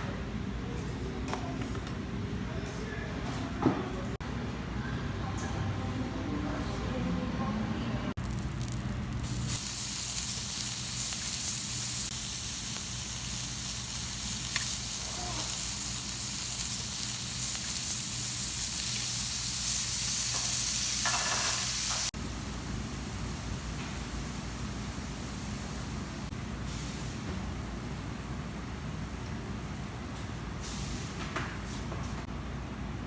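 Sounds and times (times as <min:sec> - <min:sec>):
food sizzling: 0:08.2 - 0:26.3.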